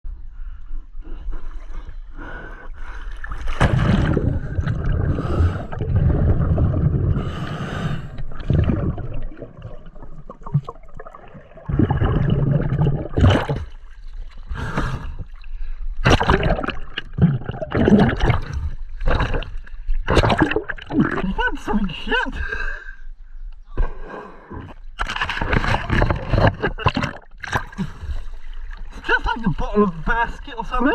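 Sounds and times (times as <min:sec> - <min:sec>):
bubbles gurgling underwater: 0:03.3 - 0:14.0, 0:16.0 - 0:21.4
breathing through a regulator: 0:05.1 - 0:05.8, 0:07.2 - 0:08.3.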